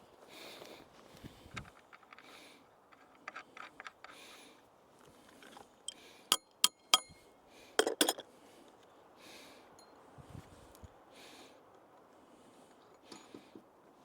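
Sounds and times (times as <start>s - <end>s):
metal hardware clinking: 6.3s - 7.2s, 7.8s - 8.2s
sharp ringing clinks: 6.3s - 7.3s.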